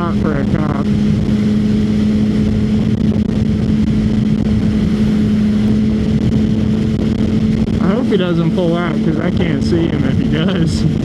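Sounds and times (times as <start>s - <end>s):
motorcycle engine humming: 0.0s - 11.0s
road noise: 0.0s - 11.0s
wind noise: 0.0s - 11.0s.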